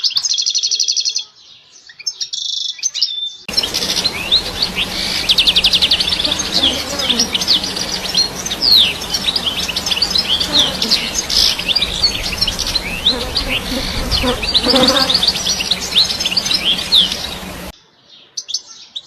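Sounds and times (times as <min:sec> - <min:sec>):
goldfinch singing: 0:03.5 - 0:17.7.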